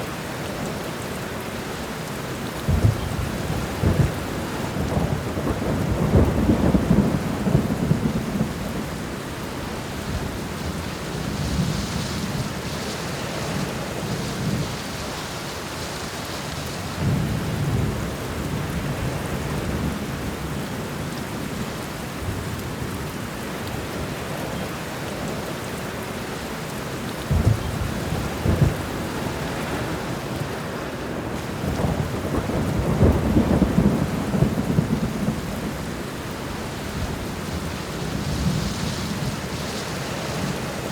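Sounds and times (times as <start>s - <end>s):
steady rain: 0.0s - 40.9s
thunder rumbling: 2.6s - 15.1s, 27.2s - 40.9s.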